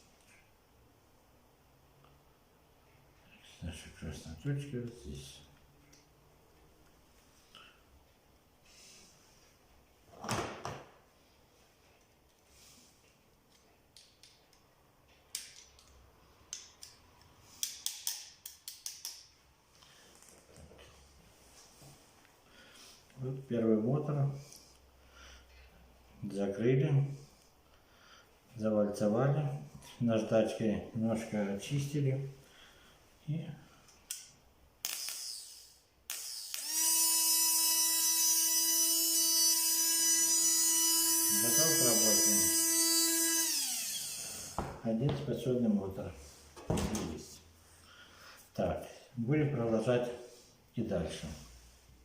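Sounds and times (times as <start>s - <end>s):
electric motor high whine: 36.1s - 44.6s.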